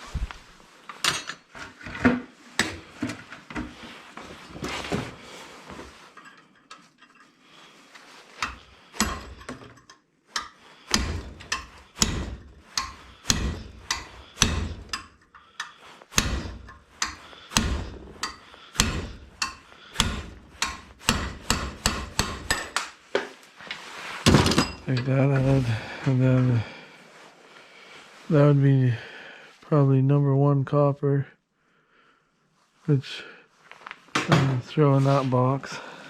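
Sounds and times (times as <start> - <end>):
hammer striking metal punch: 10.4 - 15.1, 16.1 - 22.8.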